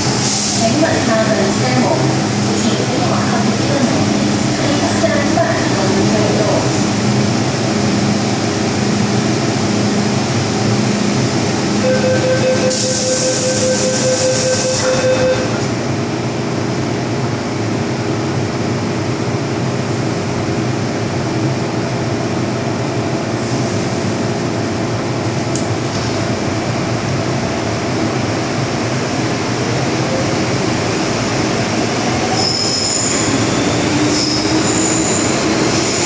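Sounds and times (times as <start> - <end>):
train running noise: 0.0 - 36.0
pulsing door warning tone: 11.8 - 15.7.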